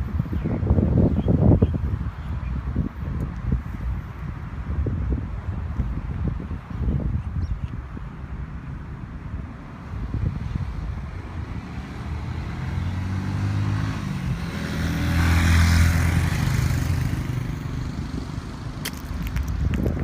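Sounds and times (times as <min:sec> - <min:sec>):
motorcycle passing by: 0:10.0 - 0:18.8.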